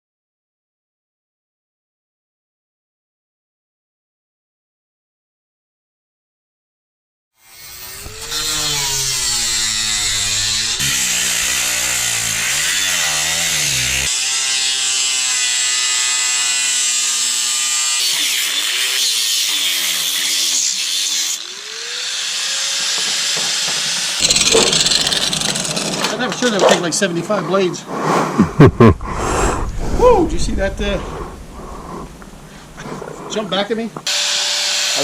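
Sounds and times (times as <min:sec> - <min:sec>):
power saw cutting: 0:07.4 - 0:27.7, 0:30.7 - 0:35.0.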